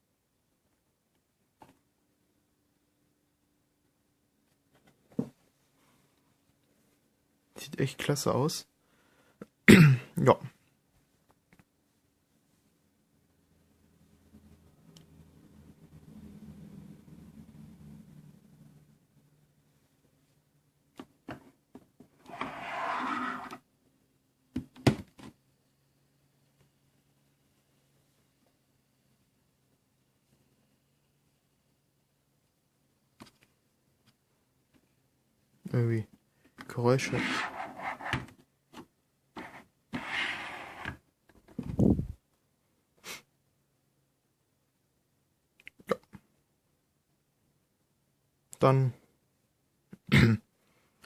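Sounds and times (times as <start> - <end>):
handling rustles and scrapes: 37.0 - 38.4.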